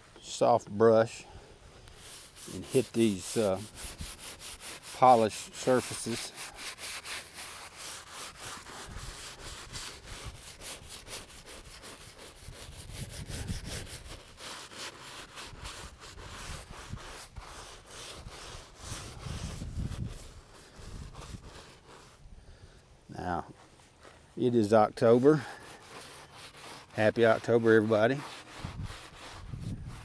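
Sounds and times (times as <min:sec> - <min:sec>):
brush scrubbing stone: 0:01.6 - 0:22.2, 0:23.2 - 0:30.0
wind rumbling on microphone: 0:12.4 - 0:14.2, 0:18.2 - 0:21.6, 0:28.5 - 0:30.0.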